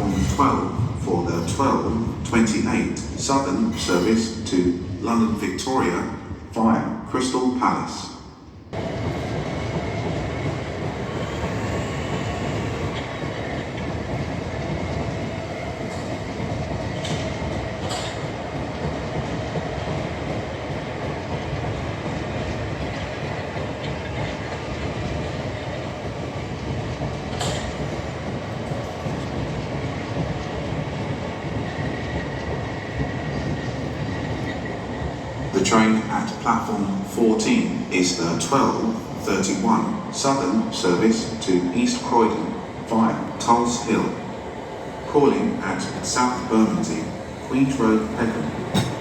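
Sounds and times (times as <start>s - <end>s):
train passing through station: 0.0s - 49.0s
wheels clacking over rail joints: 8.8s - 35.5s, 46.1s - 49.0s.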